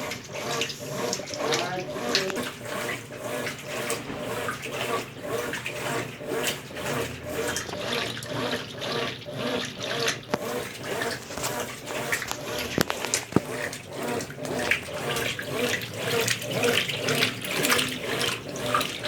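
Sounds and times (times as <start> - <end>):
washing machine water sloshing: 0.0 - 19.0.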